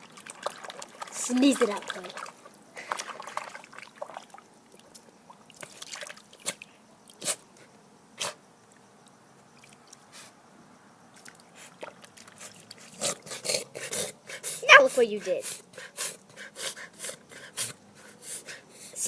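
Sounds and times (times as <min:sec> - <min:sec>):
dog splashing in puddle: 0:00.0 - 0:04.4, 0:05.5 - 0:06.6.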